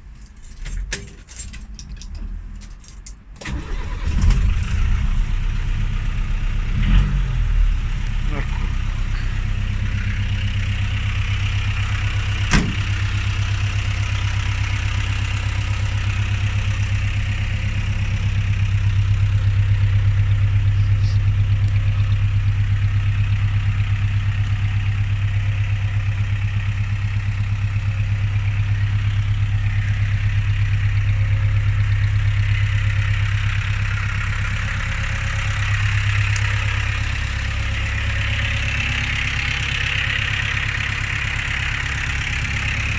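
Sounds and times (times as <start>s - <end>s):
engine idling: 0.0s - 42.9s.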